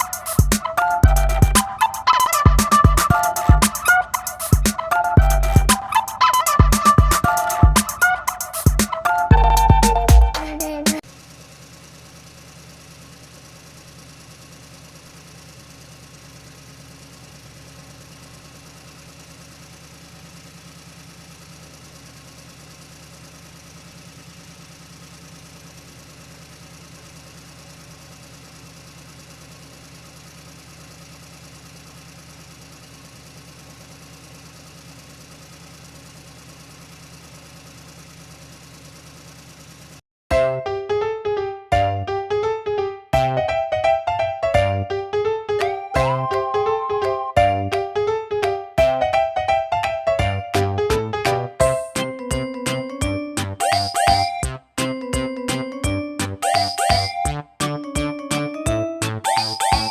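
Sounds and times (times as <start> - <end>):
music: 0.0 - 11.0, 40.3 - 59.9
engine-like idling hum: 0.0 - 40.0.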